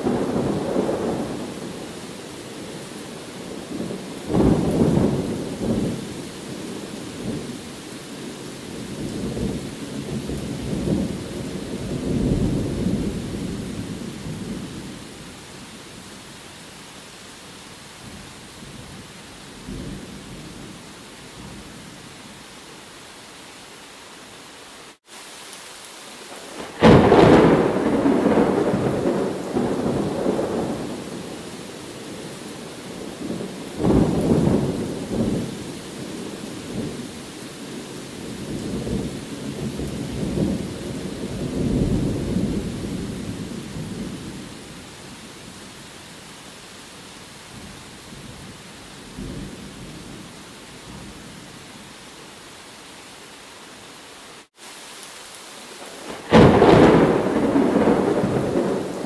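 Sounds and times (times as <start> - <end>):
thunder rumbling: 0.0 - 2.0, 2.6 - 7.6, 26.5 - 37.0, 38.2 - 44.8, 55.8 - 59.0
steady rain: 0.0 - 59.0.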